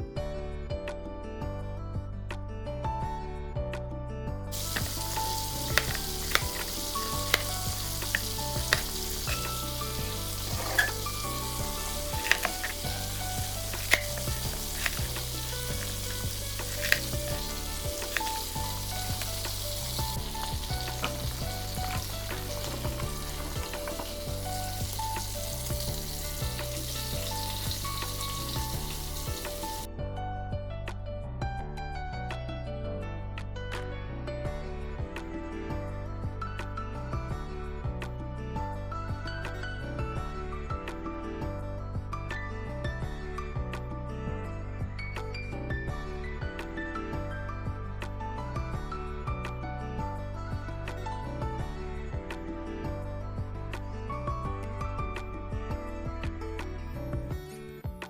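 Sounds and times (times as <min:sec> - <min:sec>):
soft background music: 0:00.0 - 0:58.0
food sizzling in hot oil: 0:04.5 - 0:29.9
utensil clicking against pan: 0:04.6 - 0:29.9.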